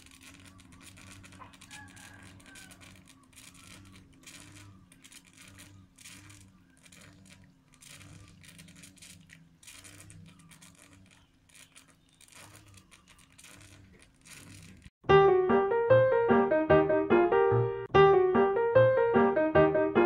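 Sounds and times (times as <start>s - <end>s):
water trickling into bamboo: 0.0s - 15.0s.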